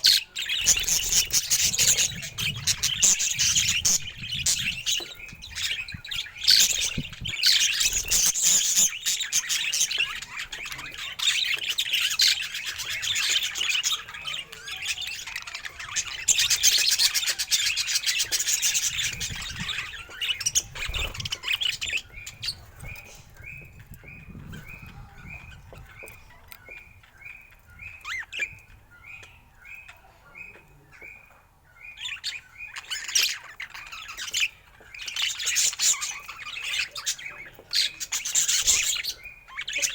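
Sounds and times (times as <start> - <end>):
budgerigar warbling and chattering: 0.0 - 27.0, 32.0 - 39.9.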